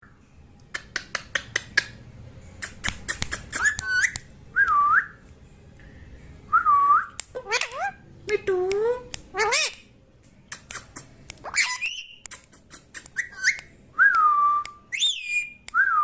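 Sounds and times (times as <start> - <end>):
parrot clicking: 0.6 - 2.0, 7.1 - 9.9
parrot whistling: 3.4 - 4.2, 11.4 - 12.2, 13.0 - 13.7, 14.6 - 16.0.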